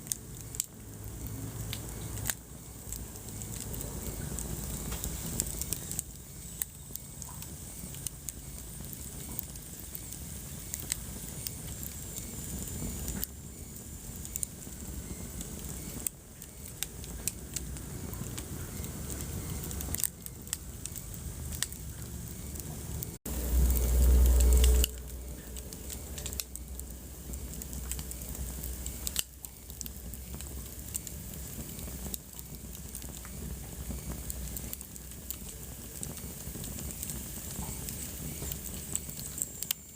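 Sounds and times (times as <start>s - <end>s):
wood fire crackling: 0.0s - 39.9s
loud low rumble: 21.1s - 29.0s.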